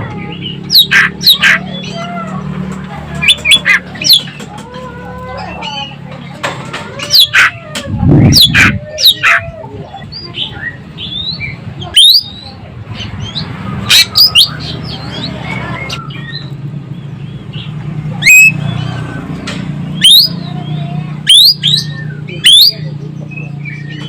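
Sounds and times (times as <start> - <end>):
bird singing loudly: 0.3 - 2.4, 7.1 - 16.6, 17.6 - 19.2, 19.9 - 24.0.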